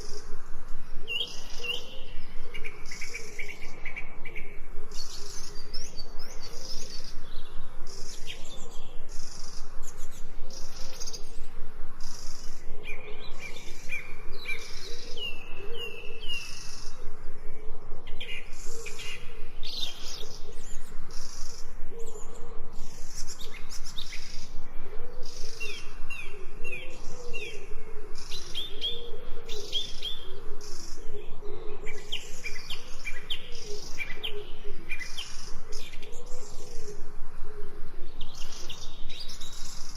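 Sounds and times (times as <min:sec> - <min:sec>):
birds chirping and singing: 0:00.0 - 0:39.9
lower warbling calls: 0:00.0 - 0:39.9.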